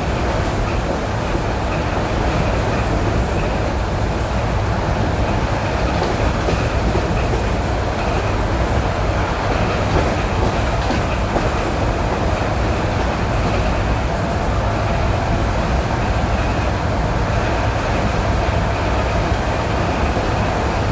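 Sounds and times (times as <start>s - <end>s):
train wheels rumbling: 0.0s - 20.9s
wheels clacking over rail joints: 5.2s - 14.5s.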